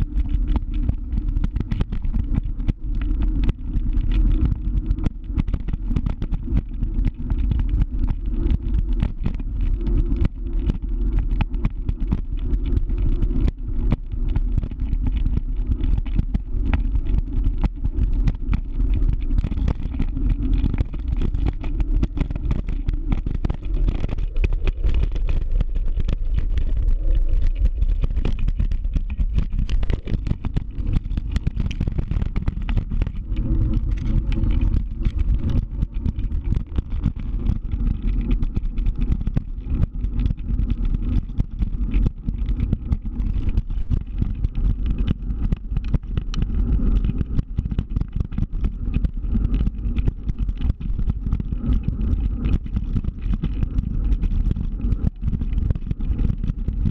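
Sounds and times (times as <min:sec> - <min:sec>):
scooter rumble: 0:00.0 - 0:50.8, 0:53.1 - 0:55.5
wind buffeting microphone: 0:19.5 - 0:38.7.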